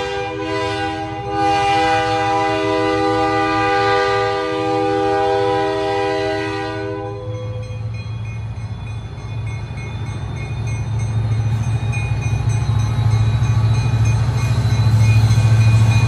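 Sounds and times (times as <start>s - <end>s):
locomotive air horn chord: 0.0s - 7.6s.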